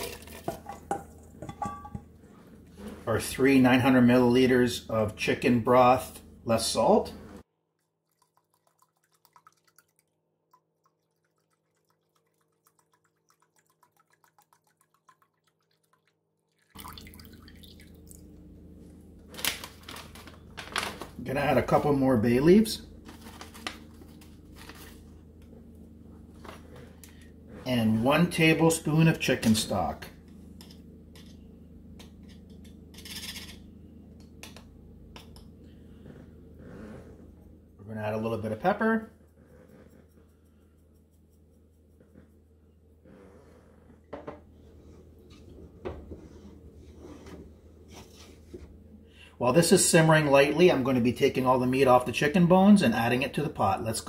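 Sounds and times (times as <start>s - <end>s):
broth trickling into pot: 0.0s - 0.8s, 7.6s - 18.3s
steady low hum: 16.8s - 54.0s.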